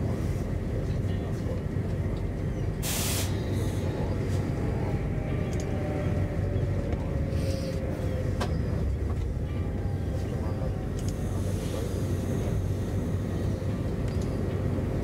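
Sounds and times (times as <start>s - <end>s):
train running gear rumble: 0.0s - 15.0s
short hiss: 2.8s - 3.4s.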